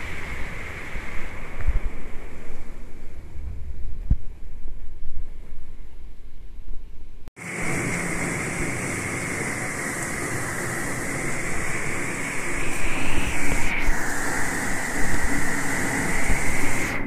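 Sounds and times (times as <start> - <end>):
wind rumble on microphone: 0.0 - 17.0
heavy rain pouring: 7.4 - 17.0.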